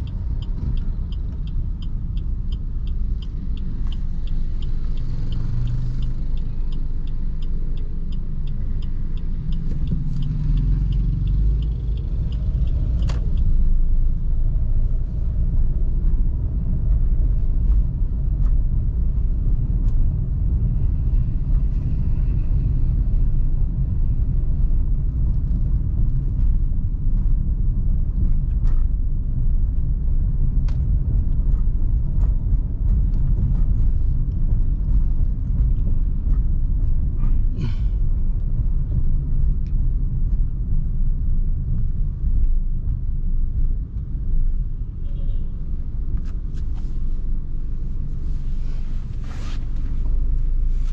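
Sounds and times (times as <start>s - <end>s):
rapid regular ticking: 0.0s - 16.7s
car engine and road rumble: 0.0s - 50.9s.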